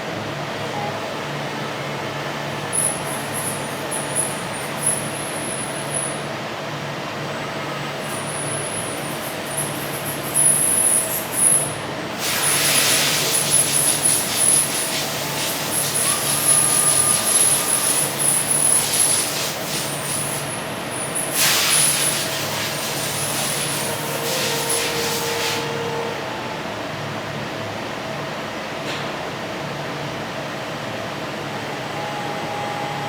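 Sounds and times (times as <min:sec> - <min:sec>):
machinery humming: 0:00.0 - 0:28.8, 0:29.4 - 0:33.0
high machine whine: 0:00.8 - 0:06.6, 0:07.2 - 0:27.7
compressed air bursts: 0:12.2 - 0:18.2, 0:21.1 - 0:25.7.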